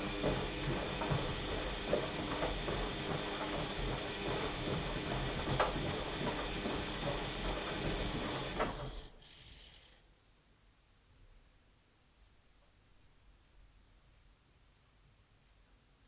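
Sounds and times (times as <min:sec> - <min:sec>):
washing machine clicks and ticks: 0:00.0 - 0:09.1
washing machine whirring: 0:00.0 - 0:09.4.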